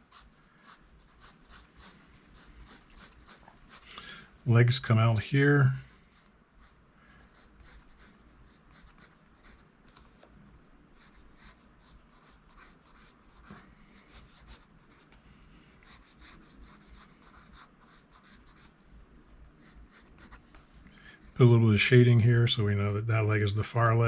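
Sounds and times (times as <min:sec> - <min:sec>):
pencil scratching on paper: 0:00.0 - 0:03.8, 0:06.2 - 0:09.6, 0:11.0 - 0:15.1, 0:15.8 - 0:18.7, 0:19.6 - 0:20.4.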